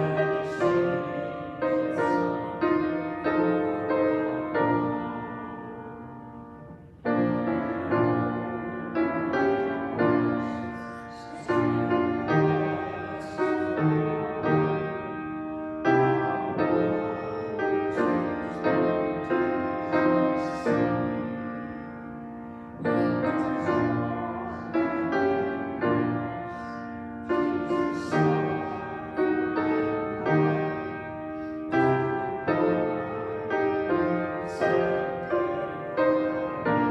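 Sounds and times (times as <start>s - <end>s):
slow piano chords: 0.0s - 36.9s.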